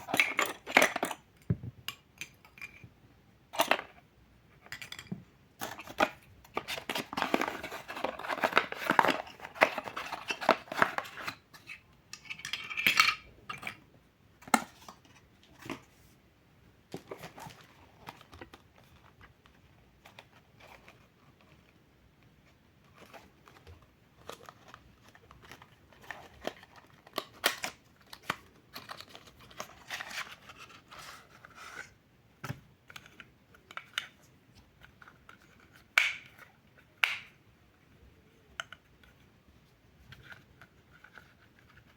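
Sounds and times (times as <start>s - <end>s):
plastic packaging rustling: 5.6s - 11.5s.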